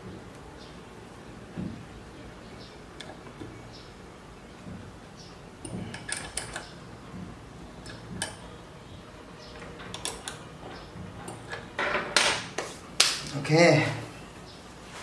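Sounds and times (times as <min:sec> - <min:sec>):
metal parts and tools clicking: 0:09.6 - 0:12.5.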